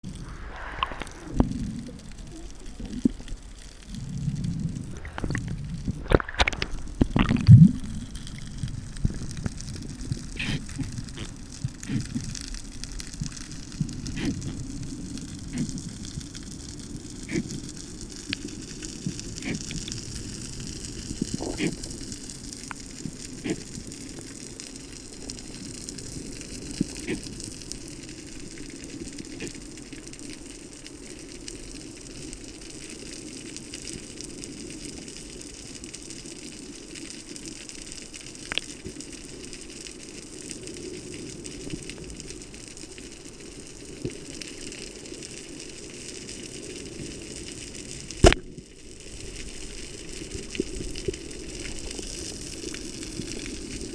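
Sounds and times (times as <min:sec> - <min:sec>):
underwater water noise hiss: 0:00.1 - 0:53.9
sharp underwater clicks: 0:04.3 - 0:09.8, 0:48.2 - 0:48.6.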